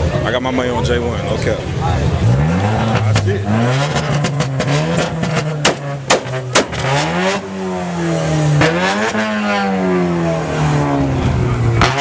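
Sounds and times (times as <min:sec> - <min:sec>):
car engine revving: 0:00.9 - 0:12.0
sharp engine bangs: 0:02.2 - 0:11.0.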